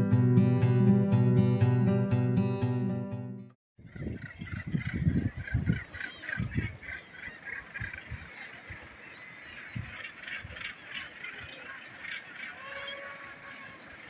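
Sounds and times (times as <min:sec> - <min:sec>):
seabirds calling: 0:03.9 - 0:14.0.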